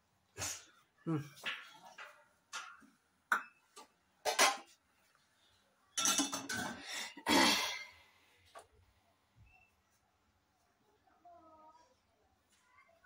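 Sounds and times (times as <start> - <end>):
dishes and utensils clattering: 1.3 - 4.8, 5.9 - 7.2.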